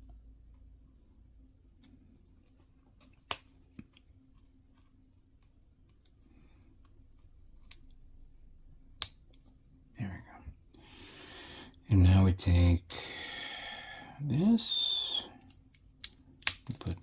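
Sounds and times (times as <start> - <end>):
sharp plastic snaps: 8.9 - 9.5, 15.4 - 17.0.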